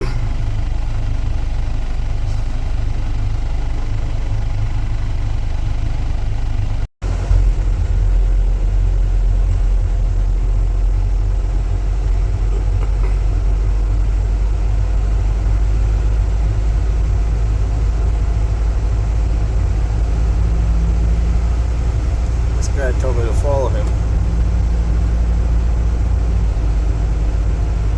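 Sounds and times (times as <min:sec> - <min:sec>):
car engine rumble: 0:00.0 - 0:27.9
road noise: 0:00.0 - 0:27.9.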